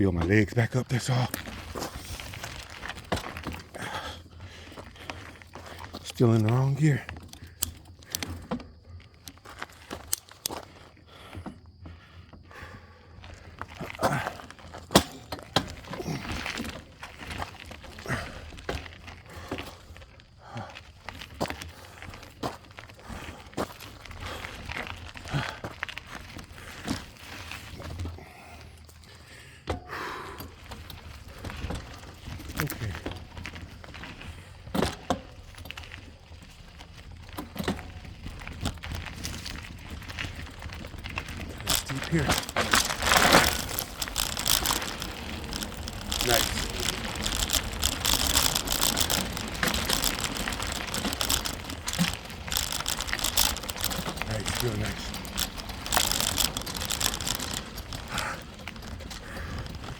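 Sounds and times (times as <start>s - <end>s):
bicycle tyres crunching on dirt: 0.0s - 59.9s
bike knocking and rattling: 0.0s - 59.9s
drivetrain clicks: 37.2s - 59.9s
low riding rumble: 38.1s - 59.9s.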